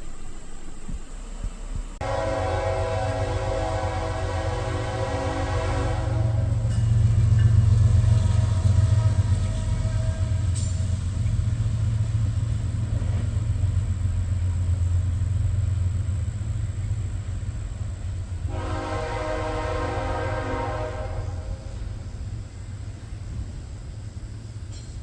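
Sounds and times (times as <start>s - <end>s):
train rumbling by: 0.0s - 25.0s
train horn chord: 2.0s - 11.0s, 18.4s - 22.0s.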